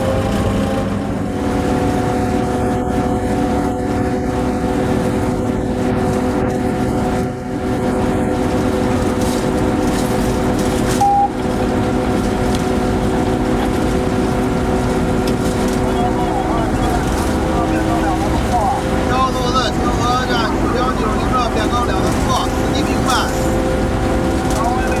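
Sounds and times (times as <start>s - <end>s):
locomotive cab drone: 0.0s - 25.0s
short beep: 11.0s - 11.4s.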